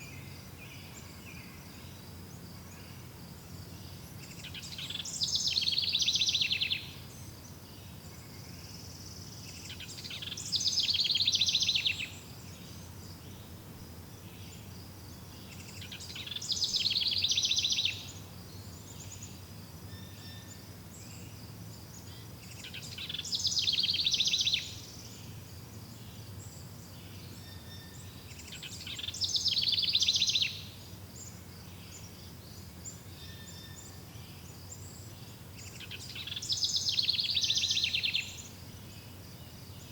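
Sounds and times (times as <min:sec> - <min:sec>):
songbird trilling: 0:04.3 - 0:07.0, 0:09.6 - 0:12.7, 0:15.4 - 0:18.2, 0:22.1 - 0:25.0, 0:27.4 - 0:30.8, 0:35.6 - 0:38.5.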